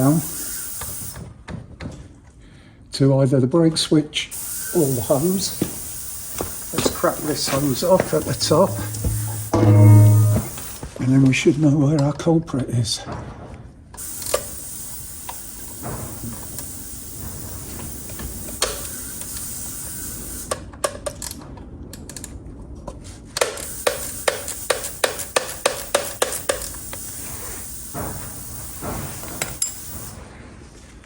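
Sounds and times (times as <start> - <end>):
ratchet clicking: 0.0 - 1.2, 4.4 - 10.8, 14.0 - 20.6, 23.4 - 30.2
steady hiss: 0.0 - 1.3, 4.3 - 10.9, 14.0 - 20.6, 23.4 - 30.3.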